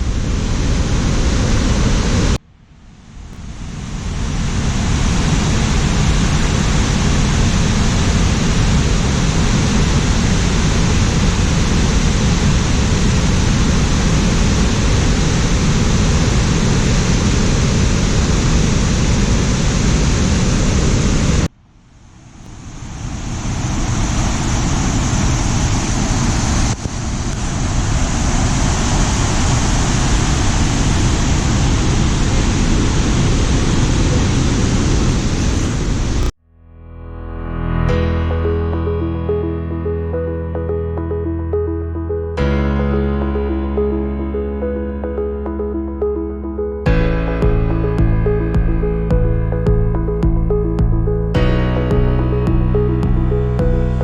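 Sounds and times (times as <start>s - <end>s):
waterfall roaring: 22.7s - 36.3s.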